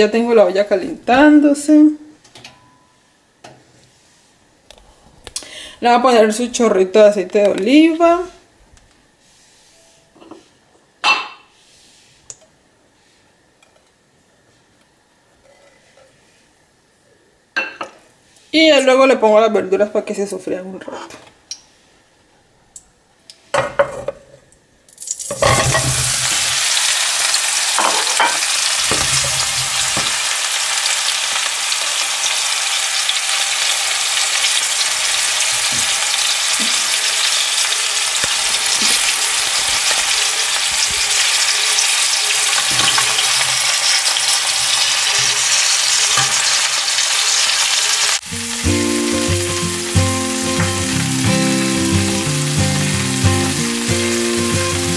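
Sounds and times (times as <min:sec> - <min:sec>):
oil sizzling in a saucepan: 0:24.9 - 0:54.9
vegetable pieces knocking in pan: 0:25.3 - 0:26.8, 0:27.8 - 0:30.3, 0:35.2 - 0:37.4, 0:42.5 - 0:46.6, 0:48.3 - 0:54.8
background music: 0:48.2 - 0:54.9.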